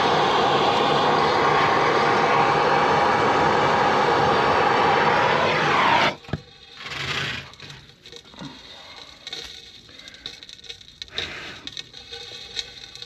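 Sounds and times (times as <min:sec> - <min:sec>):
torch flame rushing: 0:00.0 - 0:08.6.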